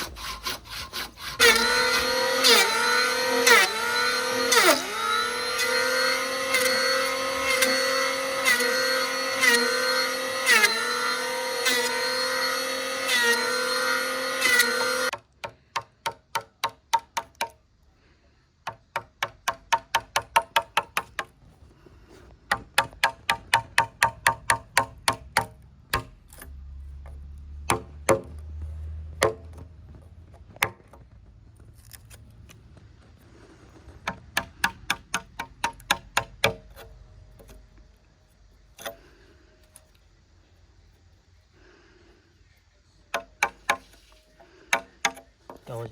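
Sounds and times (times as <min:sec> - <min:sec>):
electric power tool motor: 0:00.0 - 0:15.1.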